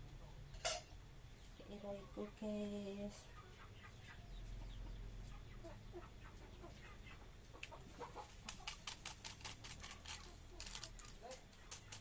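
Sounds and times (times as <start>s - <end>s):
faint chickens clucking: 0.0s - 12.0s
rapid sharp clicks: 8.4s - 12.0s.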